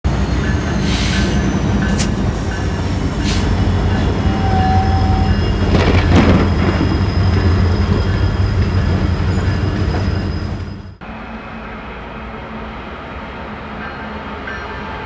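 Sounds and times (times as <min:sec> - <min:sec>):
diesel locomotive rumble: 0:00.1 - 0:13.1.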